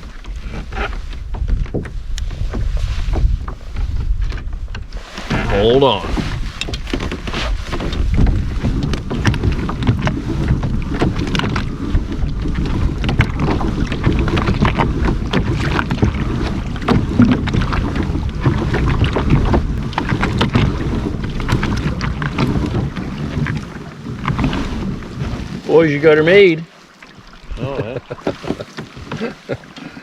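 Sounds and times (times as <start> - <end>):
wind buffeting microphone: 0.0 - 26.5
water splashing against hull: 0.0 - 30.0.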